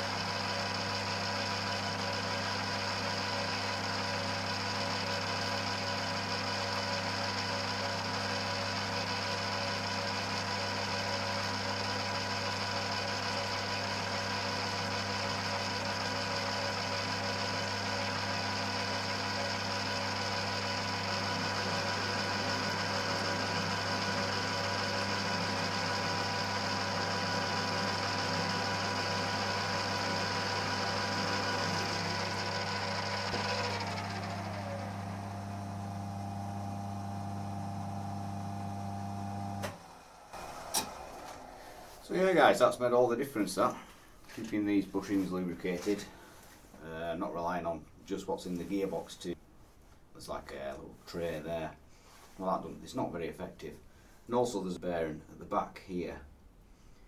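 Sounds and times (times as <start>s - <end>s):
lathe running: 0.0s - 42.6s.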